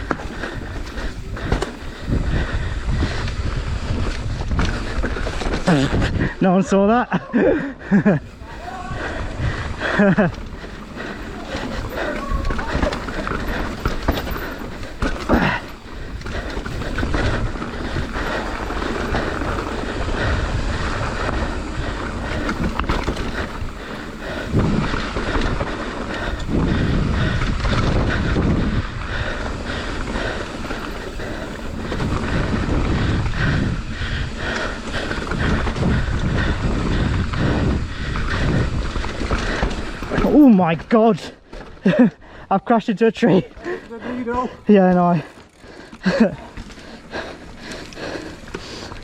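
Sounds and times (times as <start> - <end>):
wind buffeting microphone: 0.0 - 42.5
bike rattling: 0.0 - 49.0
tyres rolling over dirt: 3.3 - 6.7, 7.9 - 42.2.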